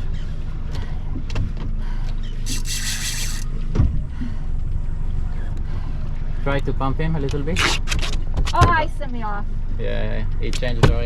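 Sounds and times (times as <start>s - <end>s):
boat engine idling: 0.0s - 7.1s
rushing hiss: 2.5s - 3.5s.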